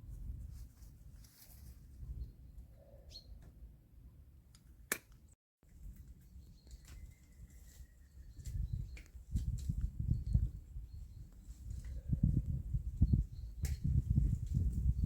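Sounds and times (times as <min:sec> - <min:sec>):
wind rumble on microphone: 0:00.0 - 0:00.9, 0:05.7 - 0:15.0
faint bird chirps: 0:02.1 - 0:03.4.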